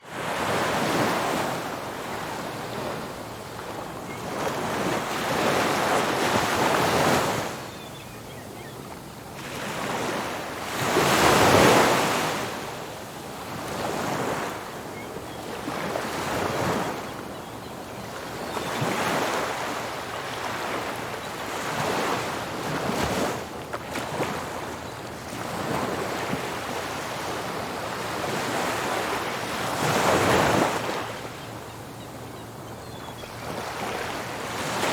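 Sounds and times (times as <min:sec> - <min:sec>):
ocean waves breaking: 0:33.4 - 0:34.9.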